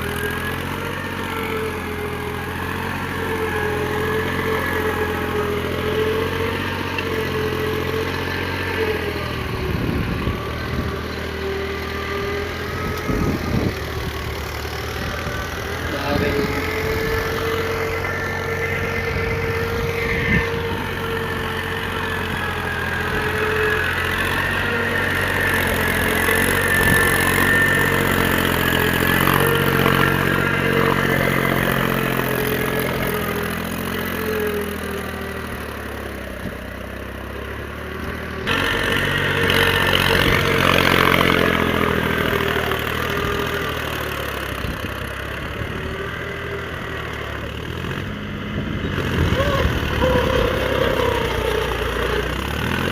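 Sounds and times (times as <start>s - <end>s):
diesel tractor engine running: 0.0s - 52.9s.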